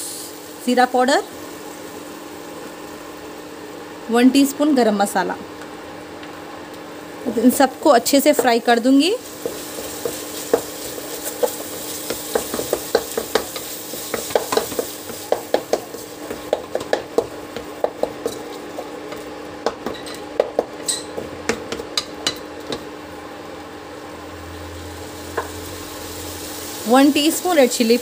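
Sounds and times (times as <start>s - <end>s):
food sizzling in a pan: 0.0s - 4.6s, 7.1s - 20.7s, 24.4s - 28.0s.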